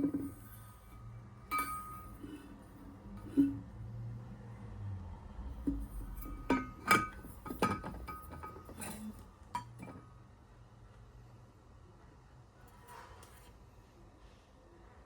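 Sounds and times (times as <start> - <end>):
glass kitchenware clinking: 1.5 - 2.5, 6.2 - 9.0.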